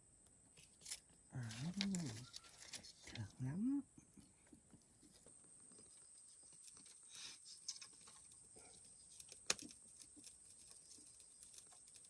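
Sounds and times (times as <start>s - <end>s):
small clicks: 6.5s - 12.0s.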